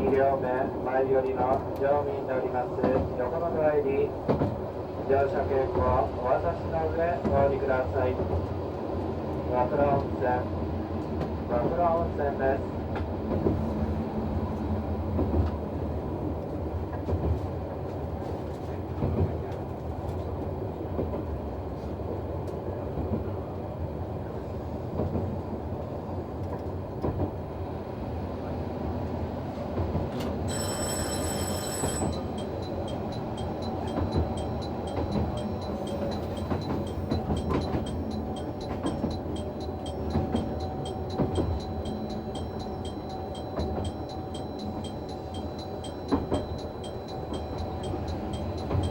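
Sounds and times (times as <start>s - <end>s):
railcar engine and wheel rumble: 0.0s - 48.9s
short high ringing tone: 30.5s - 38.2s
bell ringing: 30.5s - 48.9s.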